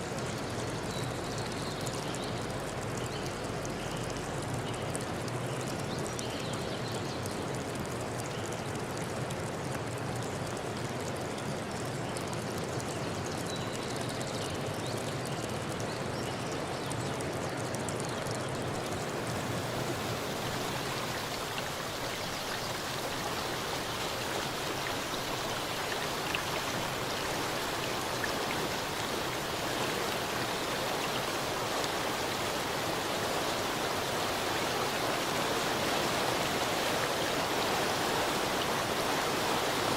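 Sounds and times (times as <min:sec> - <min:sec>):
running water rushing: 0:18.5 - 0:39.9.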